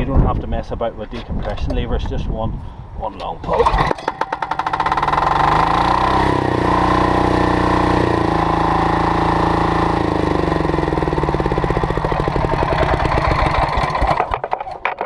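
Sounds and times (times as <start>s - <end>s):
diesel engine revving and idling: 4.5s - 14.3s.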